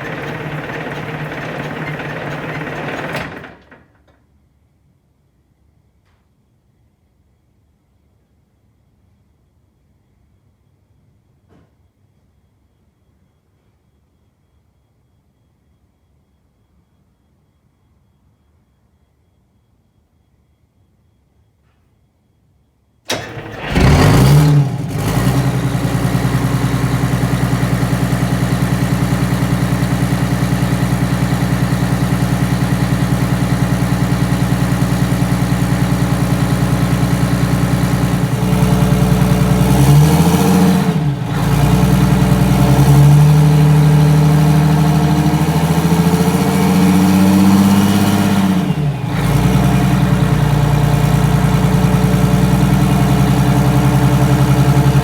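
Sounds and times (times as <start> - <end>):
diesel bus engine starting and idling: 0.0 - 4.1, 23.1 - 55.0.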